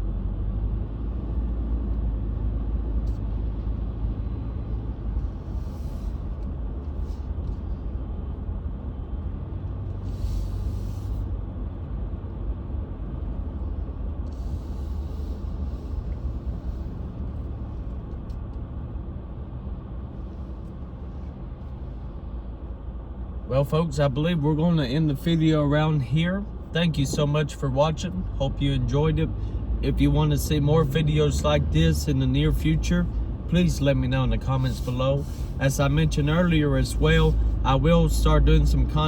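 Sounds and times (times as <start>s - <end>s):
car engine and tyres rumbling: 0.0s - 39.0s
tyre hiss on snow: 10.0s - 11.3s.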